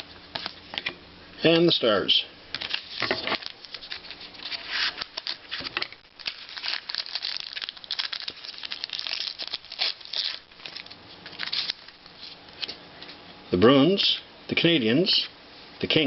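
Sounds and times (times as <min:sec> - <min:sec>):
cards rustling: 0:00.0 - 0:01.0, 0:02.5 - 0:12.8
wrapper crinkling and tearing: 0:02.6 - 0:12.4.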